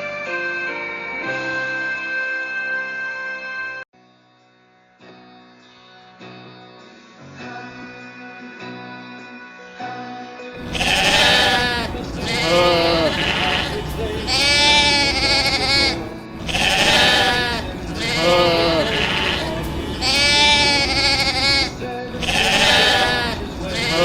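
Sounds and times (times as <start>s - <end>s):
music: 0.0s - 24.0s
sheep bleating: 10.6s - 24.0s.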